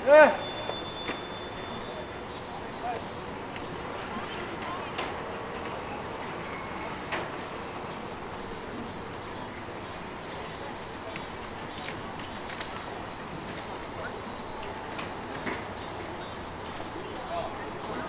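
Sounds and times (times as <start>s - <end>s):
faint distant voices: 0.0s - 18.0s.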